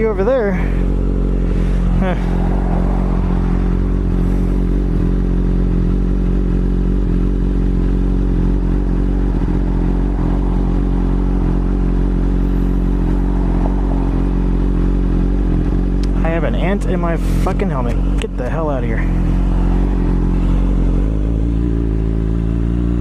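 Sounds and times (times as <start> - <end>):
motorcycle engine running steadily: 0.0 - 23.0
wind and road noise: 0.0 - 23.0.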